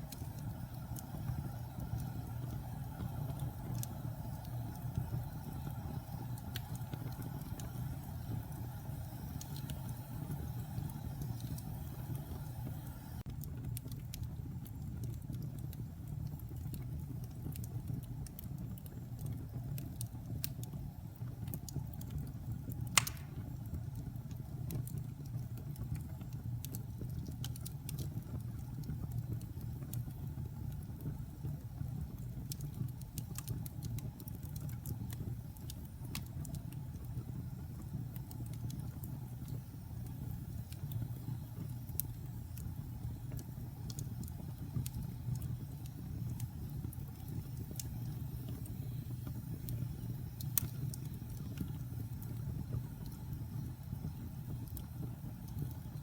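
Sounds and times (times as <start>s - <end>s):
fire rumbling in fireplace: 0.0s - 56.0s
logs crackling: 22.9s - 23.6s
loud pop from fire: 23.0s - 23.6s.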